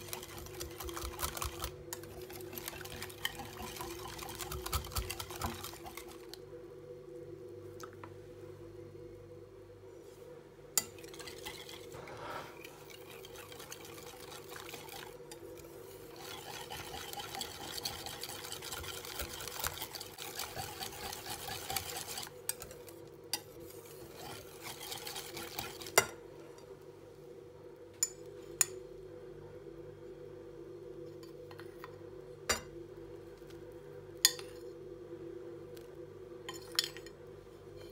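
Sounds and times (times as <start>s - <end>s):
utensil scraping in bowl: 0.0s - 6.3s, 11.0s - 22.8s, 23.4s - 26.0s
steady low hum: 0.0s - 37.9s.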